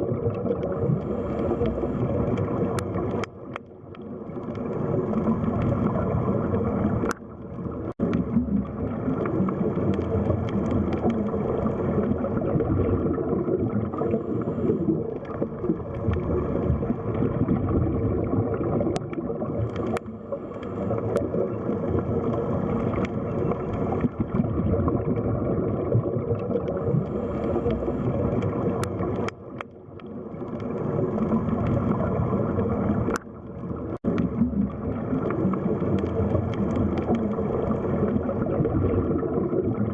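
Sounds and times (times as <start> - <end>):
underwater rush and gurgle: 0.0 - 39.9
faint clicks: 0.3 - 6.0, 6.9 - 12.2, 18.8 - 24.4, 26.4 - 32.3, 32.9 - 38.0.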